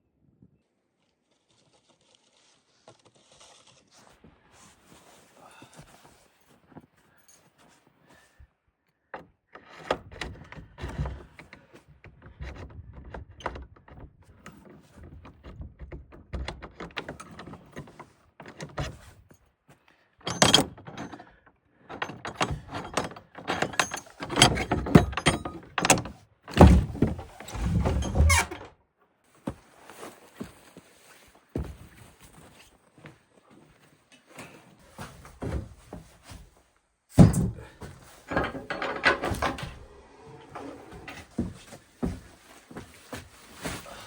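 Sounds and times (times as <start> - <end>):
objects knocking and rattling: 20.2 - 28.6, 37.2 - 39.9.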